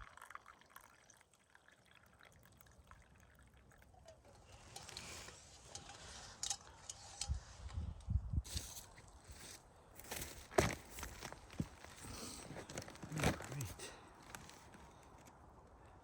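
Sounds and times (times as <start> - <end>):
tea trickling into a cup: 0.0 - 5.4.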